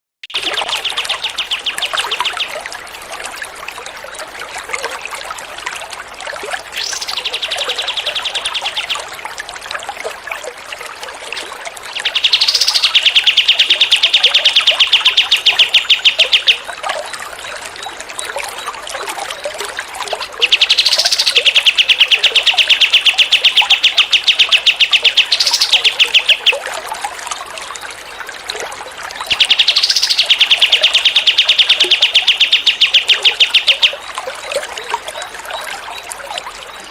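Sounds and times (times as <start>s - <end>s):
songbird trilling: 0.2s - 2.6s, 6.8s - 9.0s, 12.0s - 16.7s, 20.4s - 26.6s, 29.3s - 34.1s
water trickling: 0.2s - 36.9s.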